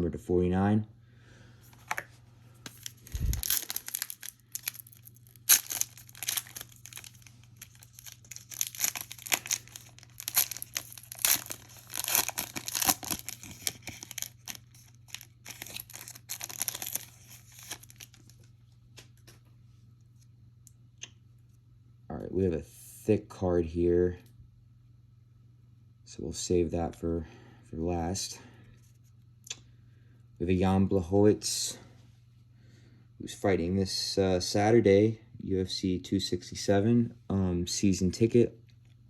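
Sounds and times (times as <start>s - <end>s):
wrapper tearing and crinkling: 2.7s - 18.4s.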